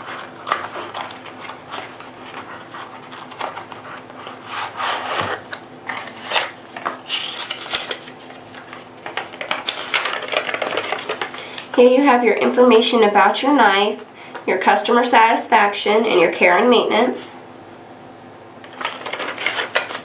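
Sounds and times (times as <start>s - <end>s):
packaging rubbing and scraping: 0.0s - 11.6s, 18.7s - 20.0s.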